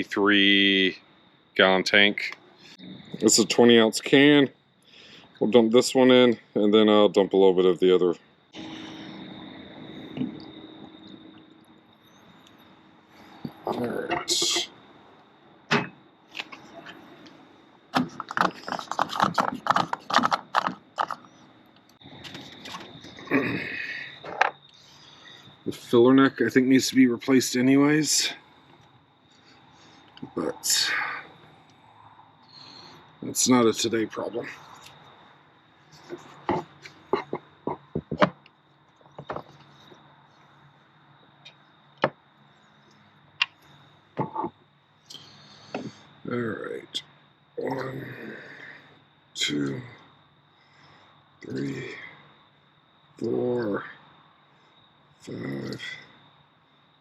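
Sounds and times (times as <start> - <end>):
faint steady hum: 0.0 - 57.0
sharp knocks and clicks: 18.0 - 21.3, 36.1 - 38.5, 39.1 - 39.6.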